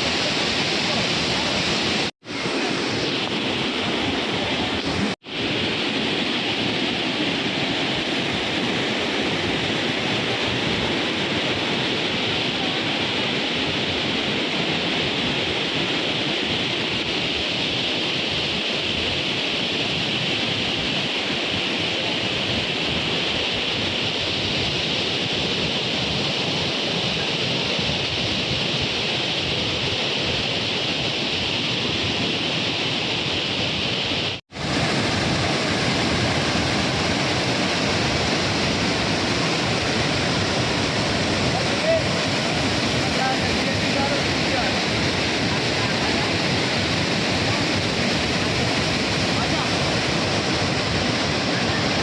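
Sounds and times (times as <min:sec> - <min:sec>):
waterfall roaring: 0:00.0 - 0:52.0.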